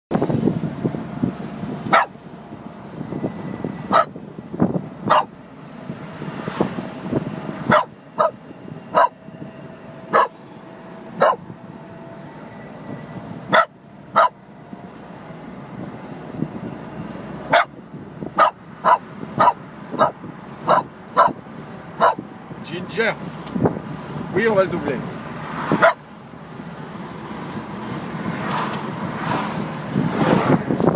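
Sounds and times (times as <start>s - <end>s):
road and wind noise: 0.1s - 30.9s
dog barking: 1.9s - 2.2s, 3.9s - 4.2s, 5.0s - 5.3s, 7.7s - 9.2s, 10.1s - 10.4s, 11.2s - 11.4s, 13.5s - 14.4s, 17.5s - 17.7s, 18.4s - 21.4s, 22.0s - 22.2s, 25.8s - 26.0s.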